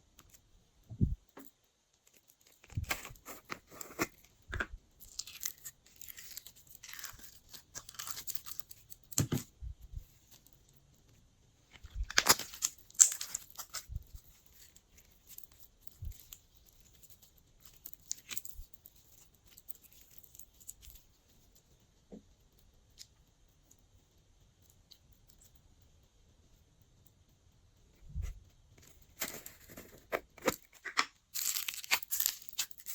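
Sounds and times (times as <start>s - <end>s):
slime crackling and popping: 2.0s - 9.3s, 11.8s - 21.1s, 29.1s - 32.9s.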